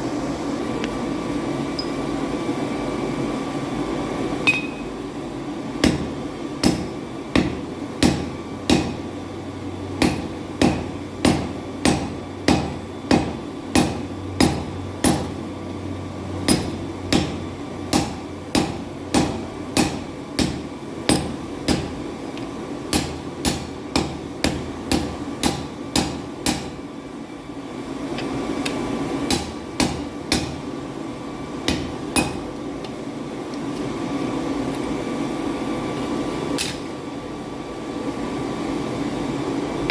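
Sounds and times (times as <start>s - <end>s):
steady hum: 0.0s - 39.9s
hammer striking steel on anvil: 4.5s - 4.9s, 5.8s - 9.0s, 10.0s - 15.4s, 16.4s - 22.0s, 22.9s - 26.8s, 29.3s - 30.7s, 31.6s - 32.6s.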